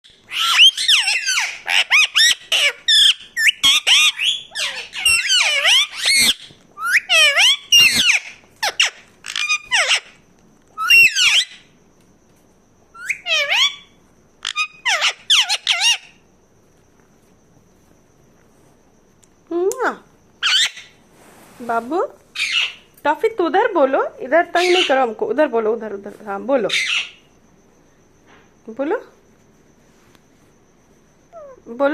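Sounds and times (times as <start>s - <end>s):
parakeet squawking: 0.2s - 10.2s, 10.8s - 11.6s, 13.0s - 16.2s, 20.4s - 20.9s, 22.4s - 22.8s, 24.5s - 25.1s, 26.7s - 27.2s.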